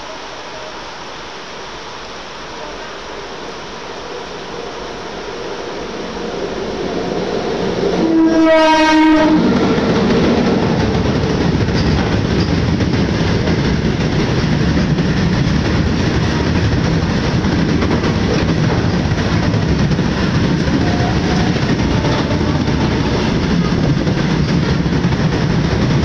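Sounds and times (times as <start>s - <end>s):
freight train passing: 0.0s - 26.0s
wheels rumbling on rails: 2.6s - 26.0s
train horn blast: 7.8s - 9.6s, 20.8s - 23.6s.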